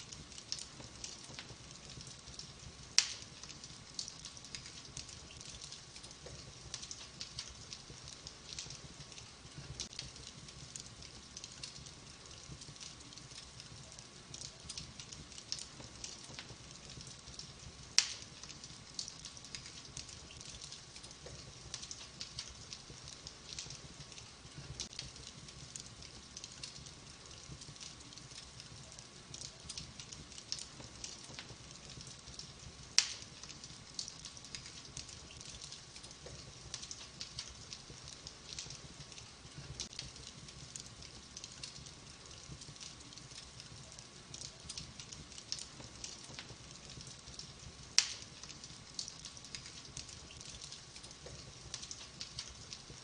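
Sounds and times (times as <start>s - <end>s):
low fire rumble: 0.0s - 53.0s
wood fire crackling: 0.0s - 53.0s
loud fire pops: 0.1s - 10.9s, 12.5s - 25.9s, 28.9s - 38.8s, 44.7s - 52.7s.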